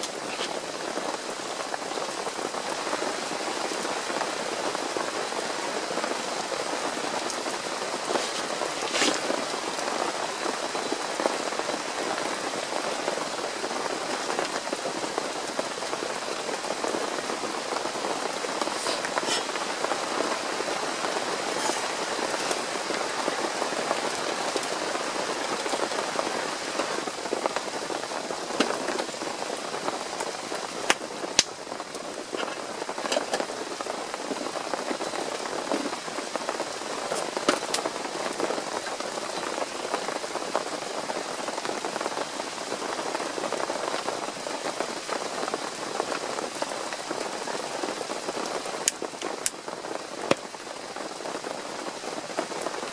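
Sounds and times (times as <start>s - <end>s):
rain pattering: 0.0s - 52.9s.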